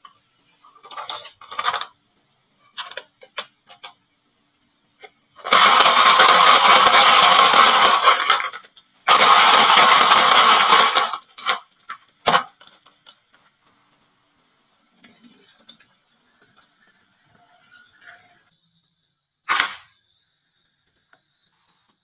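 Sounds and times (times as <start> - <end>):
marbles rattling down wooden slope: 0.8 - 1.9, 5.4 - 12.9
marbles clicking and settling: 5.5 - 12.0.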